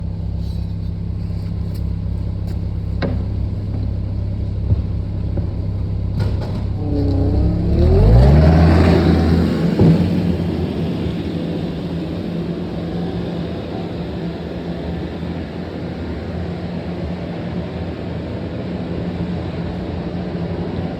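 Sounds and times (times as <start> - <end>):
tractor engine revving: 2.2 - 16.2.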